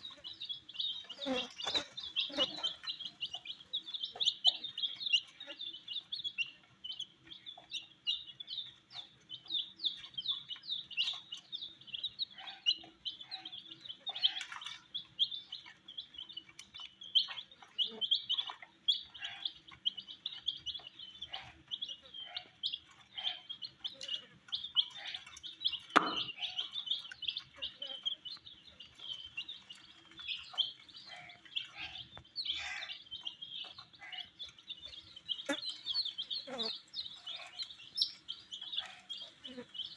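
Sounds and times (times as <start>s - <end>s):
baby chicks peeping: 0.0s - 39.9s
loud knock: 26.0s - 26.3s.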